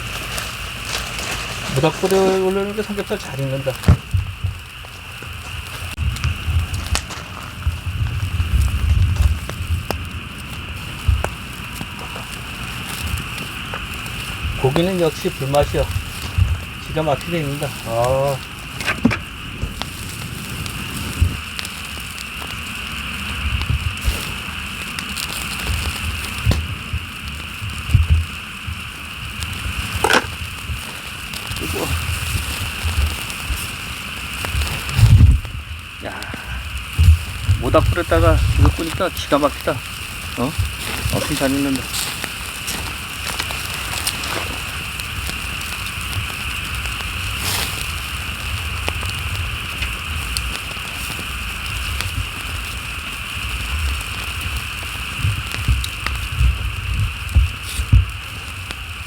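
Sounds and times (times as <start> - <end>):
low rumbling bumps: 0.0 - 21.6, 25.8 - 50.0
campfire popping and crackling: 0.0 - 59.0
meat sizzling on a grill: 0.0 - 59.0.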